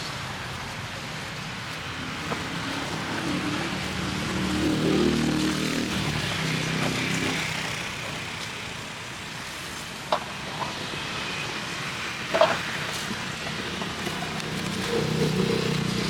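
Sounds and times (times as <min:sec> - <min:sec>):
steady traffic hiss: 0:00.0 - 0:16.0
motor vehicle passing: 0:01.5 - 0:09.0, 0:13.8 - 0:16.0.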